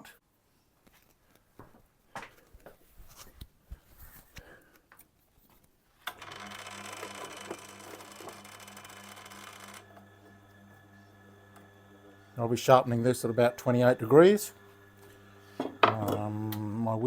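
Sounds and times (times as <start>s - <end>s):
sharpening machine motor hum: 6.1s - 17.0s.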